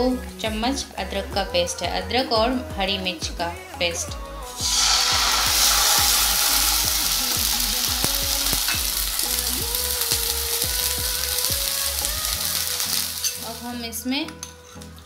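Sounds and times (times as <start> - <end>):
paste sizzling in hot oil: 4.4 - 13.8.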